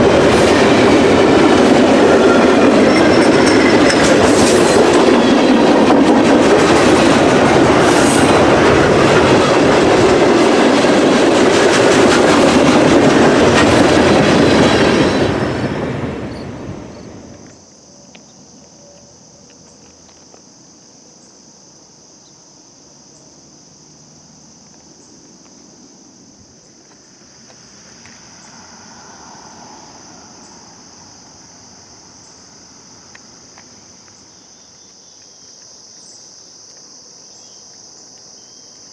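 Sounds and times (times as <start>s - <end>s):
freight train wheels clacking: 0.0s - 17.6s
crickets chirring: 0.0s - 38.9s.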